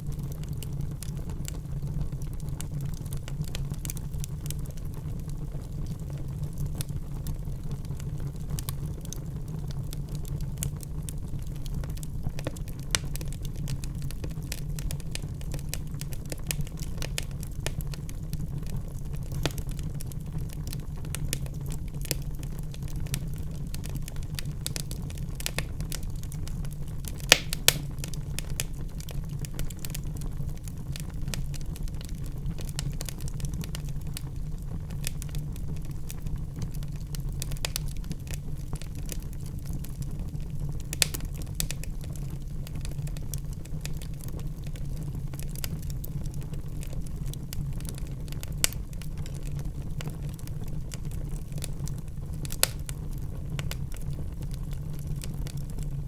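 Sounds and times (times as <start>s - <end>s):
low hum of burning: 0.0s - 56.0s
wood fire crackling: 0.0s - 56.0s
sharp fire pops: 19.3s - 19.7s, 27.0s - 29.7s, 40.8s - 41.9s.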